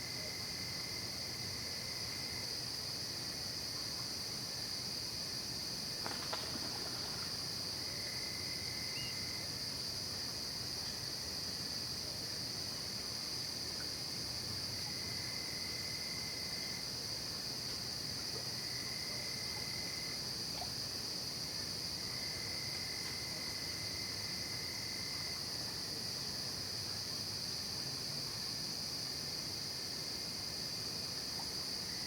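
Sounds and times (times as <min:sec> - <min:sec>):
lower-pitched insect trill: 0:03.3 - 0:11.9
high-pitched insect trilling: 0:08.8 - 0:09.4.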